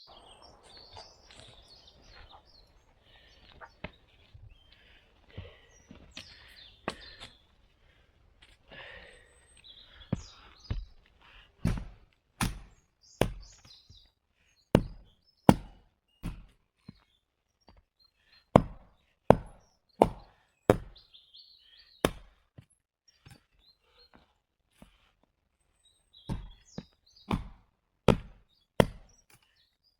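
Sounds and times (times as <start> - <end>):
faint bird chirps: 0.0 - 7.5
wood being chopped: 11.6 - 13.8, 14.7 - 17.0, 18.5 - 21.0, 22.0 - 22.4, 26.3 - 29.5.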